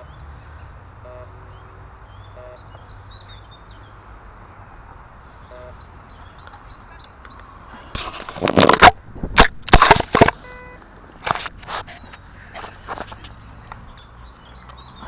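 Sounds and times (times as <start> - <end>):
steady outdoor hiss: 0.0 - 15.0
metal detector short low beeps: 1.0 - 1.3, 2.4 - 2.6, 5.5 - 5.8
faint bird chirps: 5.2 - 7.5
digging scraping and crunching: 7.7 - 10.4.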